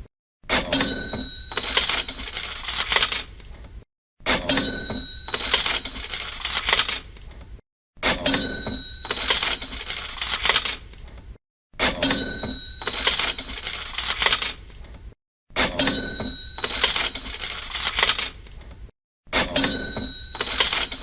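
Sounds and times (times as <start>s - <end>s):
cash register bell ding: 0.5s - 3.1s, 4.4s - 6.8s, 8.1s - 10.6s, 11.9s - 14.4s, 15.6s - 18.4s, 19.4s - 21.0s
coins jingling: 1.5s - 3.4s, 5.3s - 7.2s, 9.0s - 10.9s, 12.8s - 14.7s, 16.5s - 18.5s, 19.7s - 21.0s.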